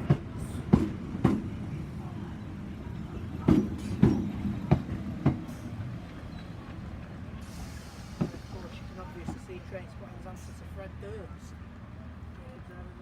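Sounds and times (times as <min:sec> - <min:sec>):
train wheels clicking over rail joints: 0:00.0 - 0:01.6, 0:03.1 - 0:09.5
low train rumble: 0:00.0 - 0:13.0.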